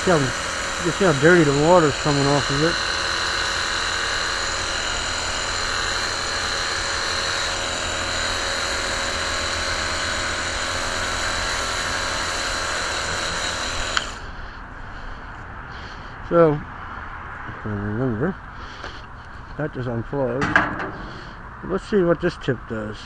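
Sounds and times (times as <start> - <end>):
water jet hissing: 0.0 - 4.6
pressure washer motor whining: 0.0 - 14.6, 20.4 - 21.8.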